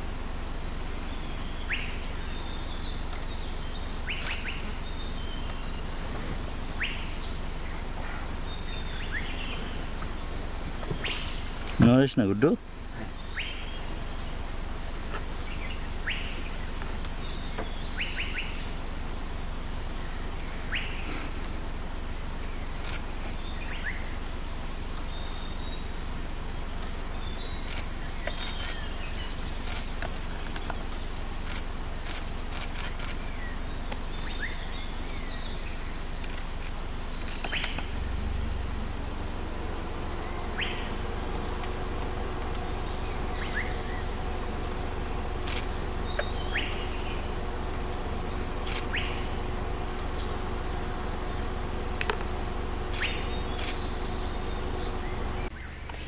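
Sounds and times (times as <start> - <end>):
steady background hiss: 0.0 - 56.0
bird chirps: 0.6 - 19.1, 22.4 - 56.0
faint droning tone: 32.5 - 55.9.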